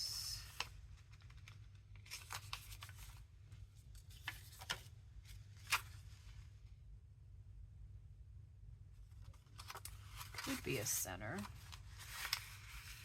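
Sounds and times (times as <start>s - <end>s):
paper pages rustling: 0.4s - 6.5s, 9.1s - 13.0s.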